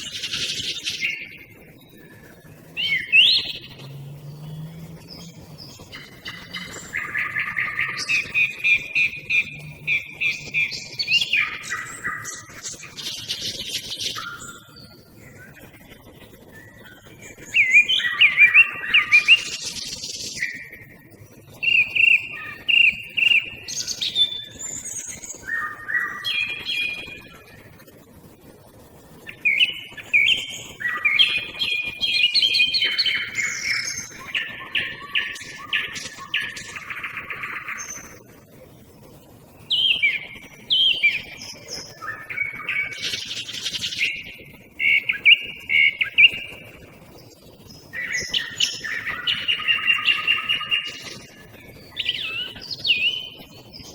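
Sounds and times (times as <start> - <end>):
nightingale singing: 0.0 - 15.6, 16.5 - 20.8, 21.6 - 27.4, 29.2 - 38.3, 39.6 - 53.9
song thrush singing: 0.0 - 20.9, 21.6 - 27.7, 29.2 - 38.3, 39.6 - 53.9
faint small bird calls: 0.0 - 27.8, 39.6 - 53.9.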